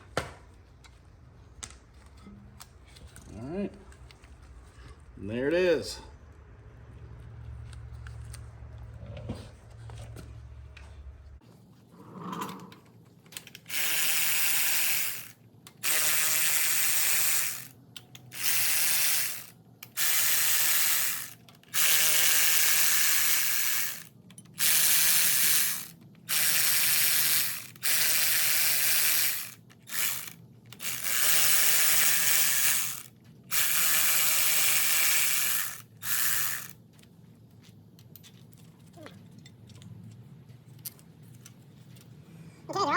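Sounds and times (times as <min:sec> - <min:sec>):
ratchet wrench working: 0:13.4 - 0:36.8.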